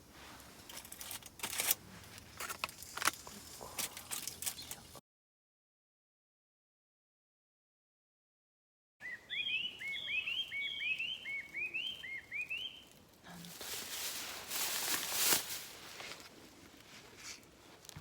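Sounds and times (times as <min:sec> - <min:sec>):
rustling: 0:00.0 - 0:05.0, 0:12.8 - 0:18.0
bird chirping: 0:09.0 - 0:13.0.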